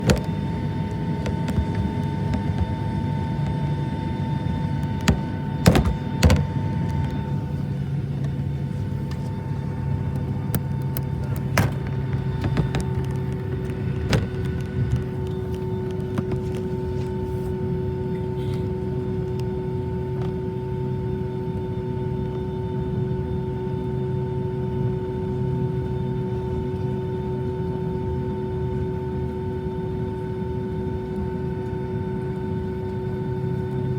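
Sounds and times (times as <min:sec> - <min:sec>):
sharp clicks and knocks: 0:00.0 - 0:03.8, 0:04.4 - 0:07.2, 0:10.2 - 0:16.6
airplane engines humming and whining: 0:00.0 - 0:33.9.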